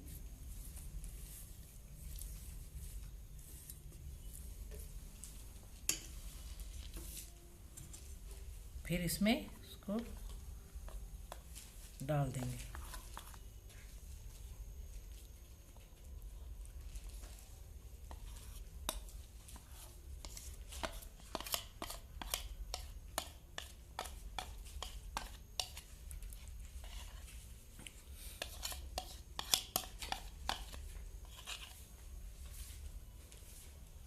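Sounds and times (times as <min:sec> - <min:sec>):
utensil clicking and scraping dish: 0:28.4 - 0:31.7.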